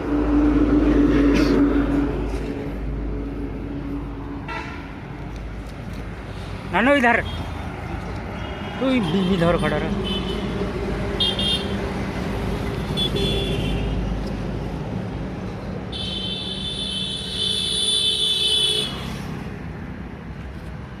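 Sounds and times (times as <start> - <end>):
truck horn: 4.4 - 5.0, 11.2 - 11.8, 12.8 - 14.0, 15.9 - 19.1.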